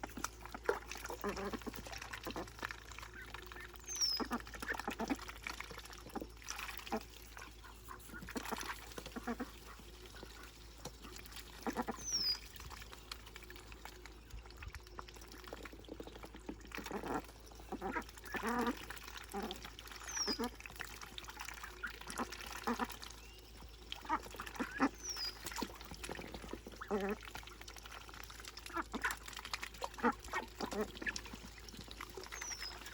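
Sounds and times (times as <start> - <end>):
light water splashing: 0.0 - 32.9
ducklings calling: 0.6 - 5.4, 6.1 - 13.1, 15.6 - 20.7, 21.4 - 27.2.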